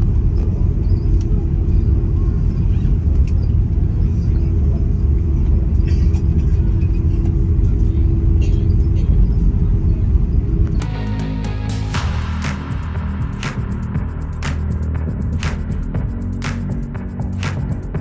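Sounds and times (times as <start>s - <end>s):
airliner cabin engine rumble: 0.0s - 10.8s.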